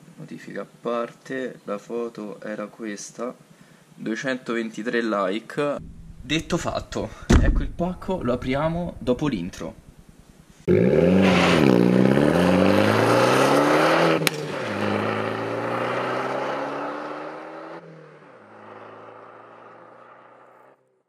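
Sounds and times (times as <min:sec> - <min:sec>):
car engine accelerating: 0:08.9 - 0:20.8.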